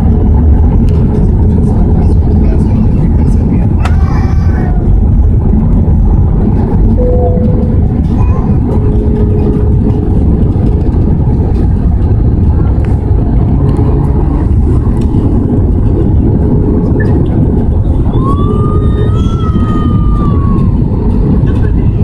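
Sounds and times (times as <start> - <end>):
airplane cabin engine rumble: 0.0 - 22.0
high wavering tone: 7.0 - 9.9.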